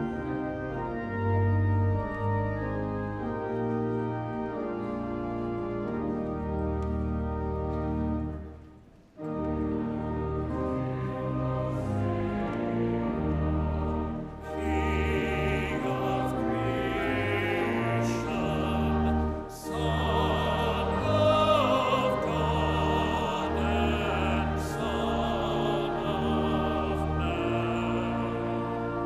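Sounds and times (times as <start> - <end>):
instrumental accompaniment: 0.0 - 29.0
choir singing a hymn: 9.7 - 29.0.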